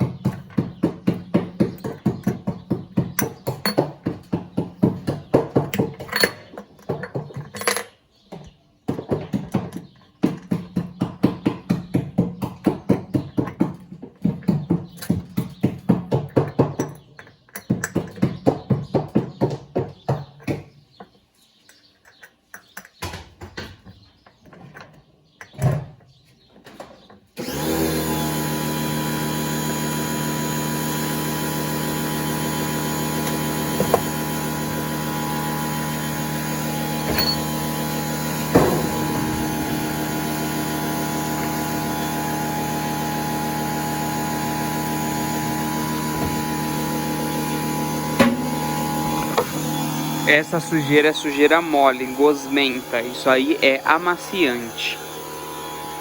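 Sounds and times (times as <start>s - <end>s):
electric machine humming: 27.4s - 56.0s.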